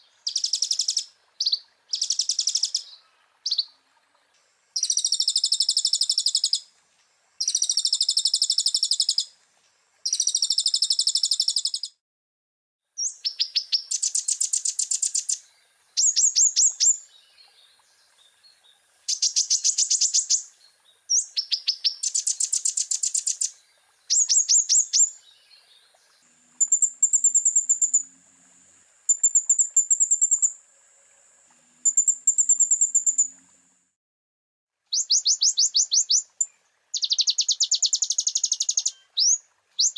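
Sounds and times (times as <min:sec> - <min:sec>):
sunbird chattering trills: 0:00.2 - 0:03.7, 0:04.8 - 0:06.6, 0:24.1 - 0:25.1, 0:26.6 - 0:28.1, 0:29.1 - 0:30.6, 0:31.8 - 0:33.4, 0:34.9 - 0:39.9.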